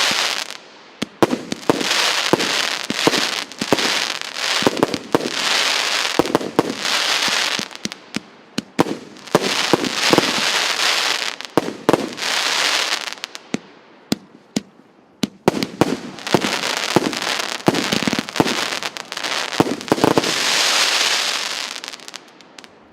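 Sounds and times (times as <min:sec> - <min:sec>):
firework crackle: 0:00.0 - 0:13.6, 0:15.2 - 0:22.8
firework bangs: 0:00.0 - 0:22.7.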